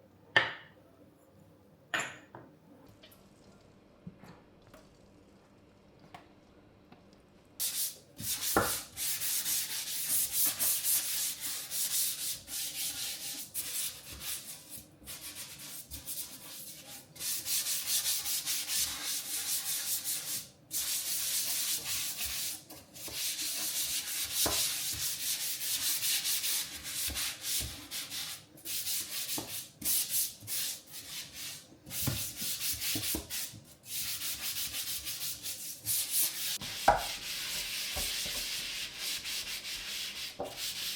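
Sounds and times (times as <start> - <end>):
scrubbing a surface: 7.6 - 40.9.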